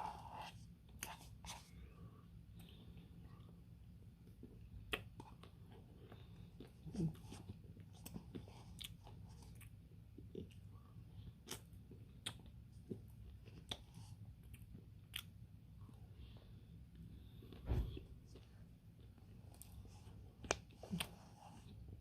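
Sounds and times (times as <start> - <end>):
person chewing: 4.2 - 16.0, 18.3 - 22.0.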